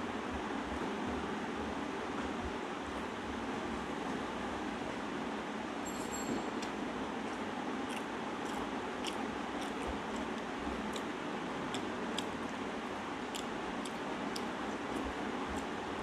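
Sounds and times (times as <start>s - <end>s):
person chewing: 7.2s - 12.6s, 13.2s - 15.7s
wet mouth clicks and smacks: 7.9s - 11.1s, 13.3s - 15.7s.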